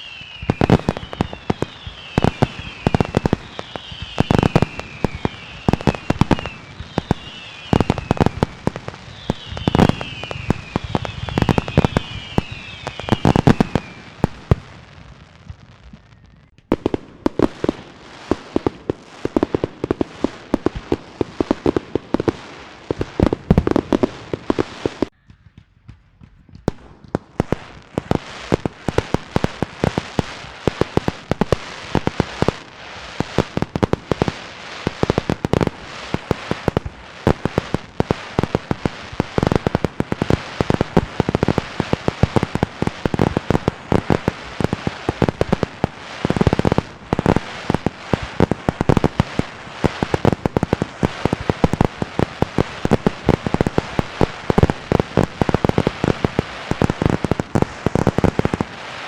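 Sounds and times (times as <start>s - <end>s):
falling firework whistles: 0.0s - 16.7s, 27.4s - 59.0s
fireworks bangs and crackles: 0.0s - 59.0s.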